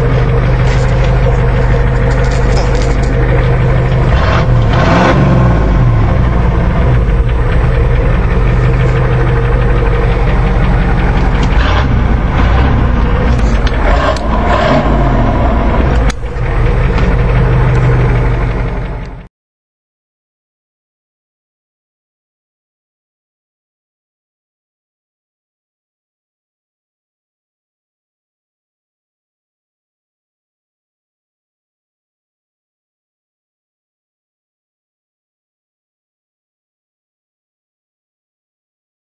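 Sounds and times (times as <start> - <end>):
diesel engine idling with knock: 0.0 - 19.3.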